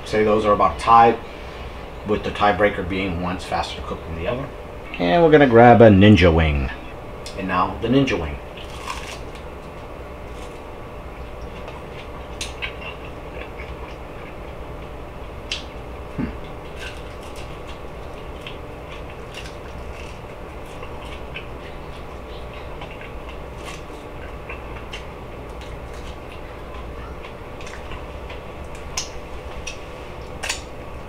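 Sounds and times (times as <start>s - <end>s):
steady low hum: 0.0s - 31.0s
chewing crunches: 8.4s - 30.9s.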